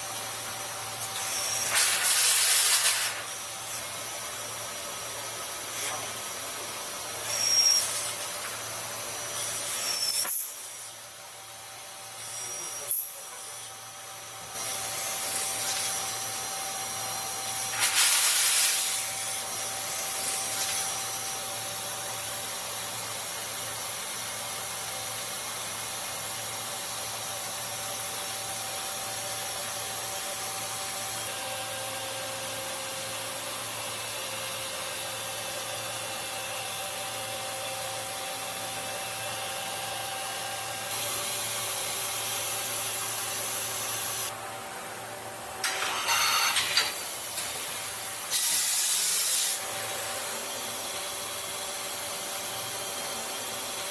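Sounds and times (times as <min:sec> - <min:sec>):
machine whine and hum: 0:00.0 - 0:53.9
hiss: 0:01.4 - 0:03.3, 0:17.7 - 0:19.2, 0:48.3 - 0:49.6.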